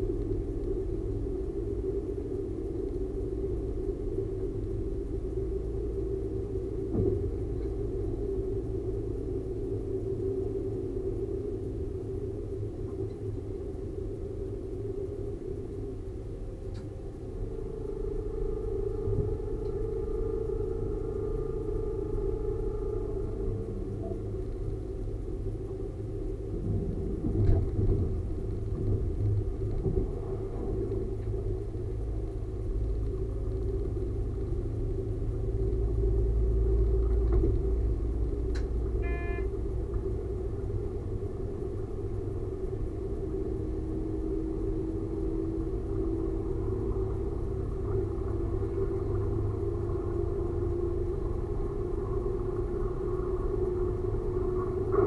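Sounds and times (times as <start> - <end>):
railcar rumbling on track: 0.0 - 55.0
brief high tone: 39.0 - 39.6.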